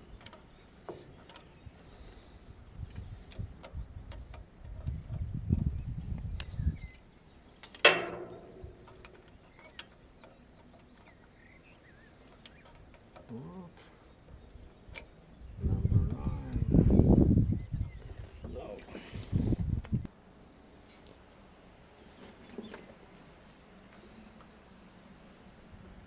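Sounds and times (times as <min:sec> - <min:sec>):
metallic clicks and ticks: 0:07.6 - 0:11.6
metal clank ringing: 0:07.8 - 0:09.2
low rumbling: 0:08.0 - 0:09.2.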